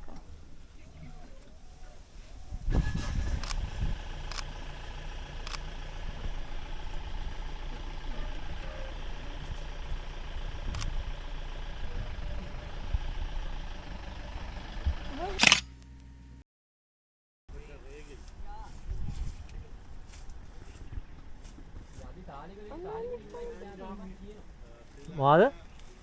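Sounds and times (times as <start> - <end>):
vehicle engine idling: 0.0 - 16.4, 17.5 - 26.0
faint clicks: 4.3 - 11.6.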